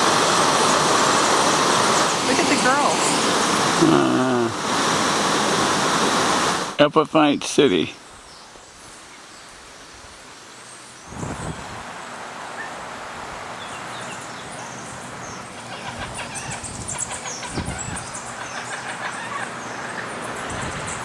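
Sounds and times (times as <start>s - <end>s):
rushing background noise: 0.0s - 6.8s.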